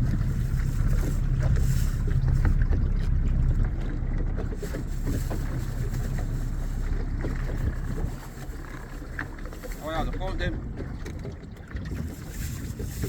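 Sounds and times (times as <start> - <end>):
wind on microphone: 0.0 - 3.8
boat motor running: 0.0 - 13.0.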